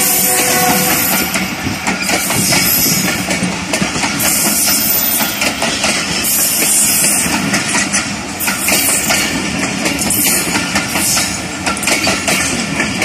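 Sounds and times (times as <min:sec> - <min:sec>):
train wheel-on-rail noise: 0:00.0 - 0:13.0
wheels clacking over rail joints: 0:00.0 - 0:13.0.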